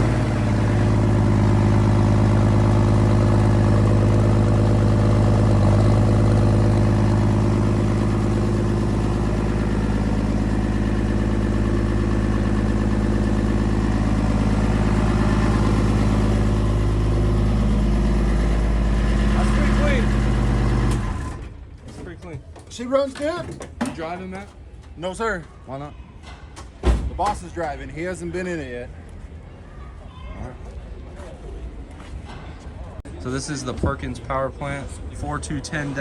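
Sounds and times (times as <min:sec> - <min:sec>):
diesel engine idling: 0:00.0 - 0:23.4.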